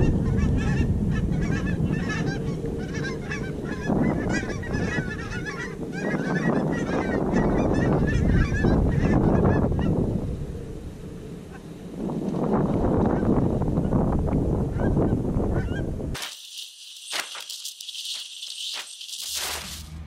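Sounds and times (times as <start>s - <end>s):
geese honking: 0.0s - 10.0s.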